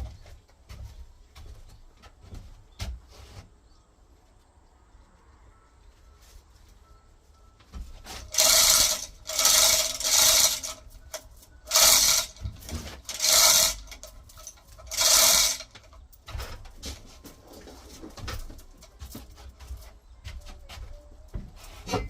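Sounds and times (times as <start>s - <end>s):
chain hoist rattling: 8.1s - 16.5s.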